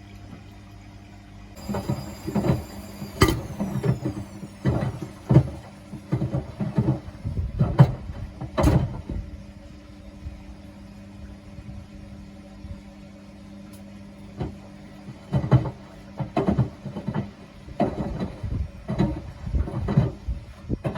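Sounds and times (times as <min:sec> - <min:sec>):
washing machine motor hum: 0:01.4 - 0:13.2.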